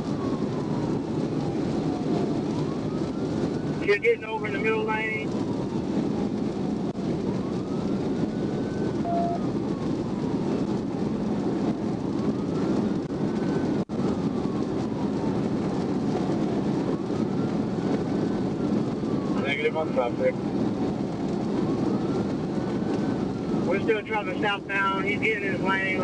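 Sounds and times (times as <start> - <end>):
faint police siren wailing: 0.0 - 26.0
road and engine noise: 0.0 - 26.0
short beep: 9.0 - 9.4.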